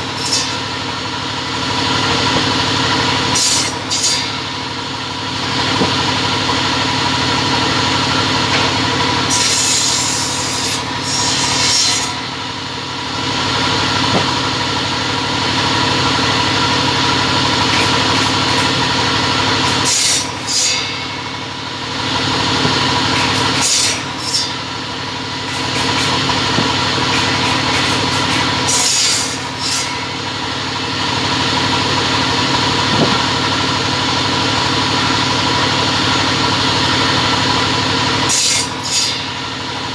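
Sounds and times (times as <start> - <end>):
blade rasping through stock: 0.0 - 0.8, 2.2 - 4.6, 8.5 - 12.6, 17.5 - 21.4, 22.0 - 30.5, 38.3 - 39.4
cutting machine running: 0.0 - 39.9.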